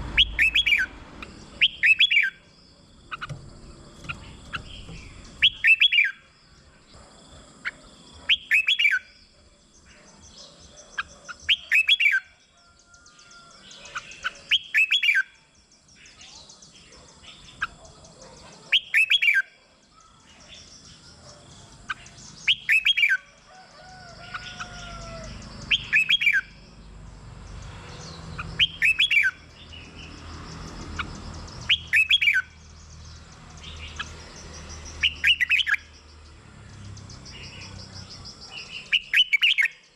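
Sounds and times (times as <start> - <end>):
bulbul singing song phrases: 0.0 - 3.3, 4.0 - 19.5, 28.2 - 39.9
faint bird chirps: 0.2 - 26.8, 28.0 - 39.9.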